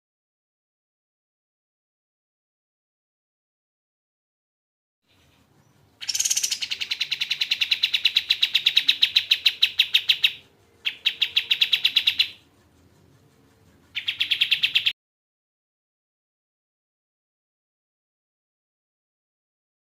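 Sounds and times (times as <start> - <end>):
bird singing a rattling trill: 5.1 - 14.9.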